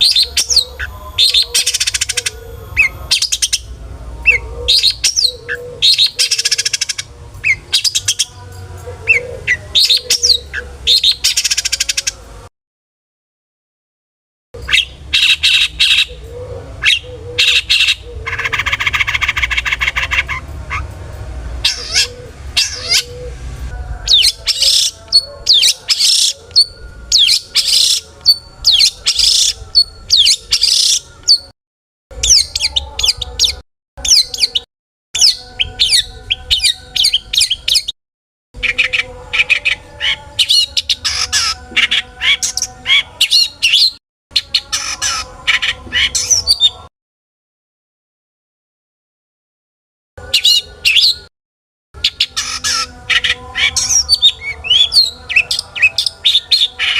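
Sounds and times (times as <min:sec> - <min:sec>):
shrike singing sharp calls: 0:21.6 - 0:31.5, 0:52.0 - 0:56.9.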